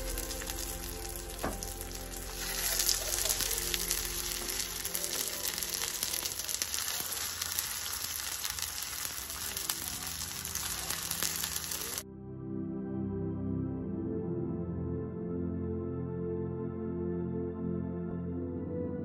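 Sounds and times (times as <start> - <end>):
soft ambient music: 0.0 - 7.6, 8.5 - 19.0
cutlets sizzling in a pan: 0.0 - 12.0.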